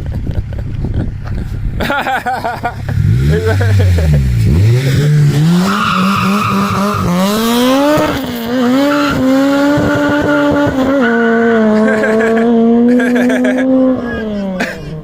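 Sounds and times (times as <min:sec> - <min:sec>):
car engine revving hard: 0:02.9 - 0:14.7
tire squeal: 0:04.5 - 0:11.7.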